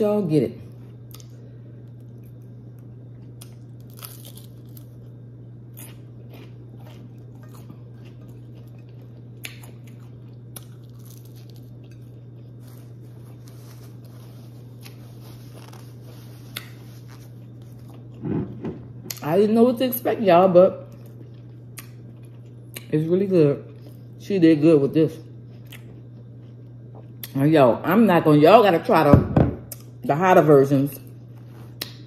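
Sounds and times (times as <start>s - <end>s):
steady low hum: 0.0s - 32.0s
chewing crisp fried fish: 0.9s - 18.2s, 20.9s - 23.0s, 25.3s - 27.4s.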